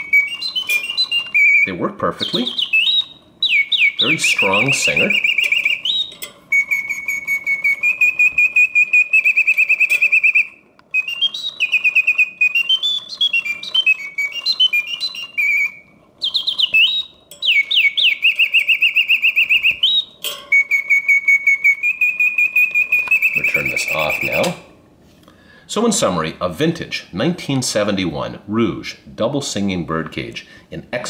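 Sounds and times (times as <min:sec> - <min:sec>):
mechanical bird whistle trilling: 0:00.0 - 0:24.6.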